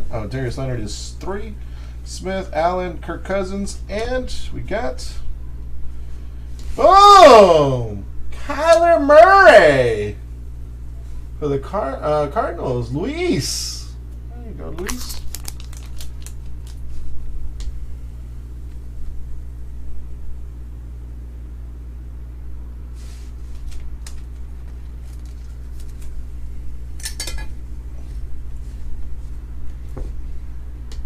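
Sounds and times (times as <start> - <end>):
low electrical hum: 0.0 - 31.0
cards and packaging clicks and rustles: 14.7 - 16.9, 23.5 - 26.2.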